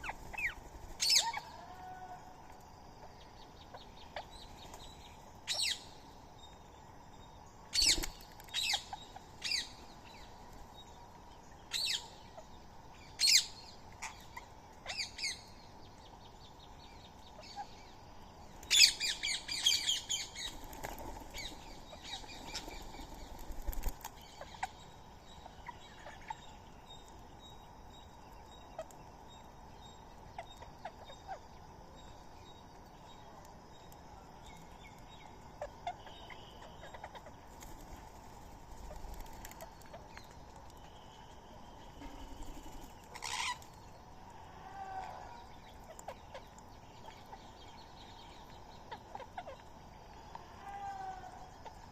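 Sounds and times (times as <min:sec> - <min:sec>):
birds giving harsh calls: 0:42.0 - 0:43.8.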